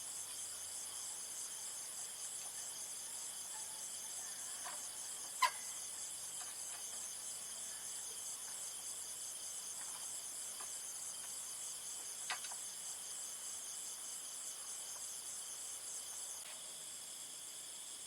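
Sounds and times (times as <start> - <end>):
insects trilling in chorus: 0.0 - 18.0
short insect chirps: 3.6 - 8.7.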